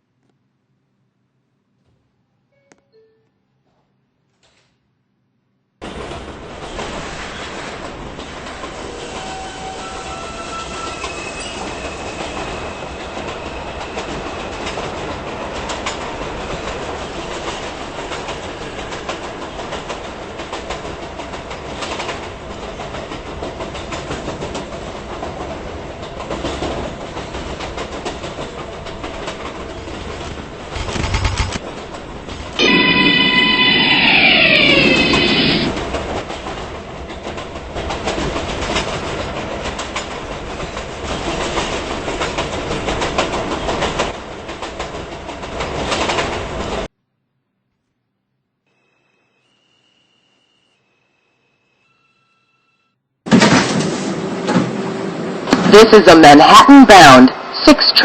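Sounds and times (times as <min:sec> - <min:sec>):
subway train rumbling on track: 0:05.8 - 0:47.0, 0:53.4 - 0:58.0.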